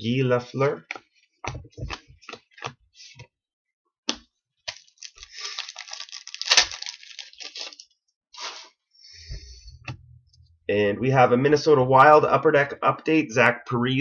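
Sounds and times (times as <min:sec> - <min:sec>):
wrapper crinkling: 0:04.7 - 0:07.9.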